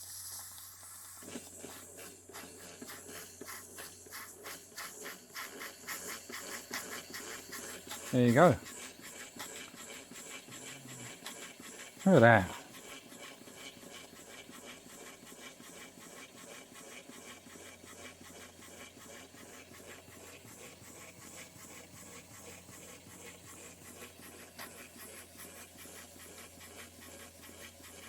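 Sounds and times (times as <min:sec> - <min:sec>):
steam hiss: 0:00.0 - 0:12.7
steam engine chuffing: 0:01.2 - 0:28.0.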